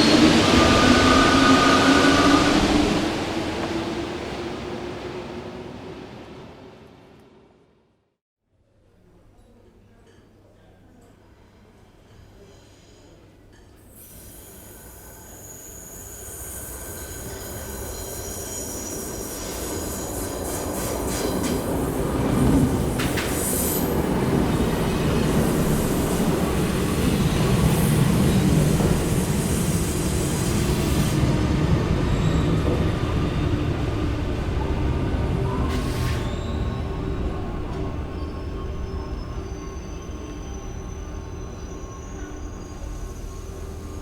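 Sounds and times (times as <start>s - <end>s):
wheel squeal on rails: 0.0s - 3.1s, 35.5s - 44.0s
metro train rumbling: 0.0s - 8.0s, 14.0s - 44.0s.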